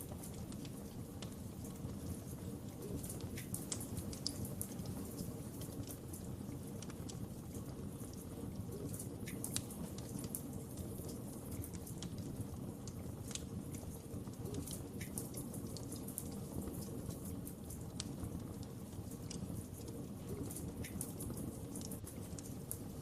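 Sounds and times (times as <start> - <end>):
fire crackling and popping: 0.0 - 23.0
fire flames rushing: 0.0 - 23.0.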